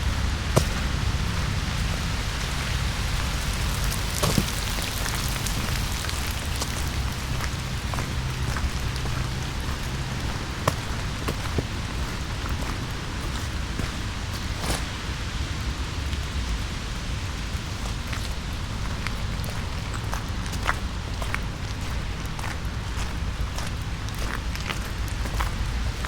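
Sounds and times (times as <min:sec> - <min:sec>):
rain pattering on wet leaves: 0:00.0 - 0:26.0.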